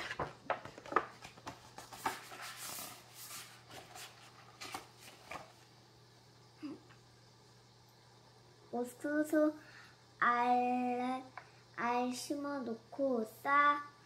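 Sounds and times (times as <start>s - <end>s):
book page turning: 0.0s - 5.6s
paper rustling: 0.0s - 5.6s.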